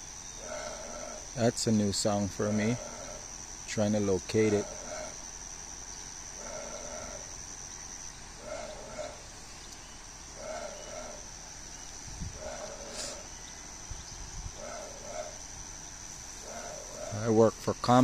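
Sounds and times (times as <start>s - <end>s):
low bird call: 0.0s - 1.4s, 6.0s - 17.4s
crickets trilling: 0.0s - 18.0s.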